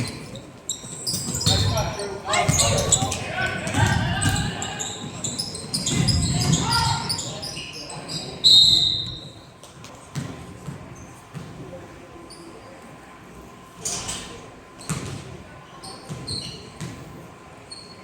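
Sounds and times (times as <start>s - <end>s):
basketball bouncing on gym floor: 0.0s - 7.3s, 10.1s - 11.6s, 14.8s - 15.4s, 16.0s - 17.1s
sneaker squeaks: 0.0s - 11.5s, 12.2s - 12.8s, 13.8s - 18.0s.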